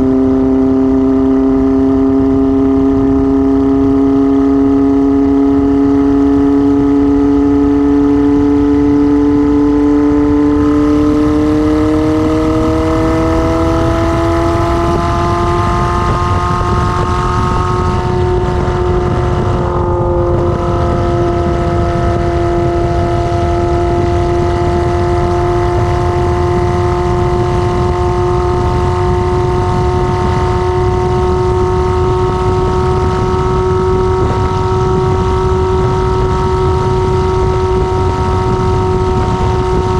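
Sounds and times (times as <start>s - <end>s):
motorcycle engine accelerating: 0.0s - 39.9s
loud rushing low noise: 9.6s - 25.9s.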